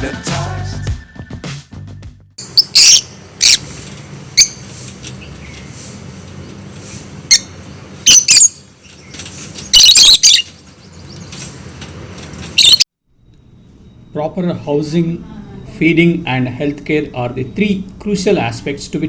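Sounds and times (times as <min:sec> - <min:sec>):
lovebirds chirping and squawking: 0:02.4 - 0:03.7, 0:07.3 - 0:11.5, 0:12.6 - 0:12.8.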